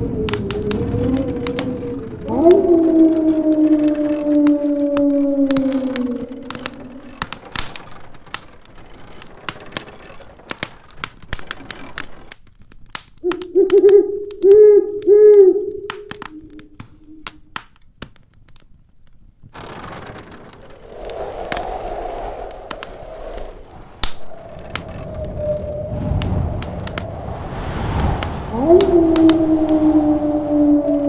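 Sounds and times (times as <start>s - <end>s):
howling wind gusts: 0.0s - 12.2s, 19.6s - 31.0s
wood fire crackling: 0.0s - 31.0s
low thunder rumble: 19.6s - 31.0s.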